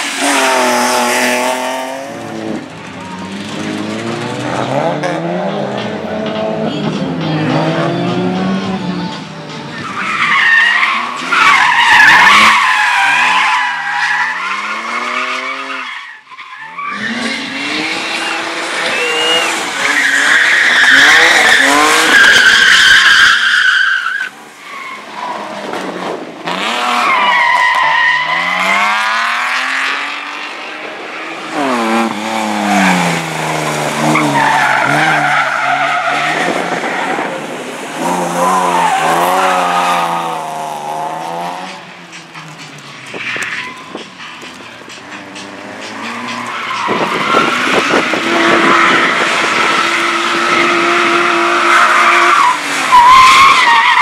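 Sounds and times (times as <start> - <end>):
car engines revving: 0.0 - 54.0
tyres squealing: 34.0 - 37.2.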